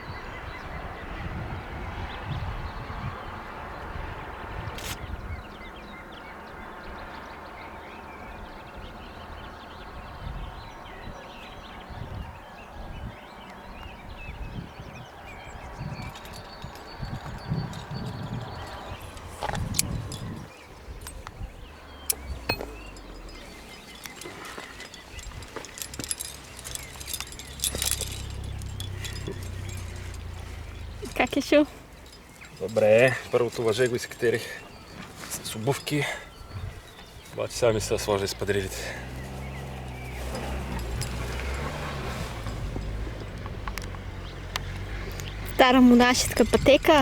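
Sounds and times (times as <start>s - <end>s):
wind rumble on microphone: 0.0s - 7.4s, 8.3s - 33.9s, 36.3s - 47.0s
small birds chirping: 0.0s - 47.0s
carabiners clinking: 4.8s - 5.0s, 15.9s - 47.0s.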